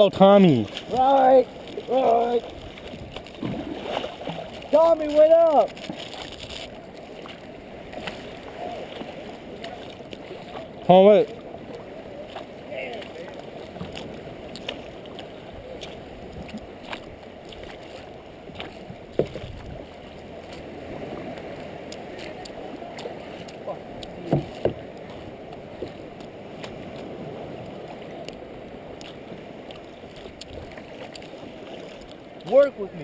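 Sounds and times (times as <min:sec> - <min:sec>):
water sloshing around kayak: 0:00.0 - 0:33.0
knocks on boat: 0:19.1 - 0:19.6, 0:24.2 - 0:24.9.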